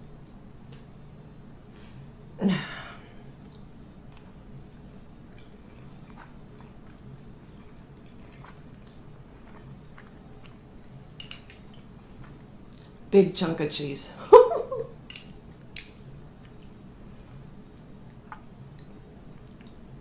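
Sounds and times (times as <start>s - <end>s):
person chewing food: 3.4s - 13.0s, 17.7s - 19.8s.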